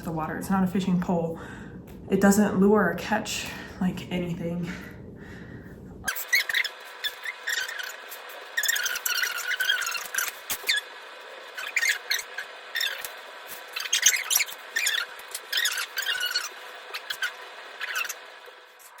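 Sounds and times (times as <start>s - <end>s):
high-pitched squeaks: 6.1s - 10.9s, 11.5s - 18.2s.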